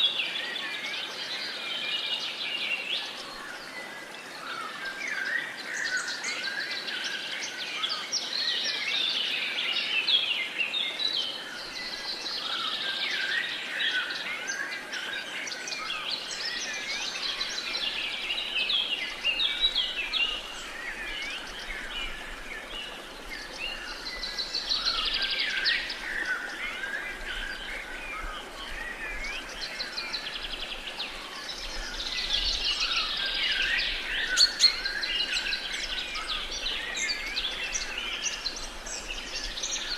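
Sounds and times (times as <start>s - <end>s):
birds singing and chirping: 0.0s - 39.9s
faint outdoor hiss: 0.0s - 39.9s.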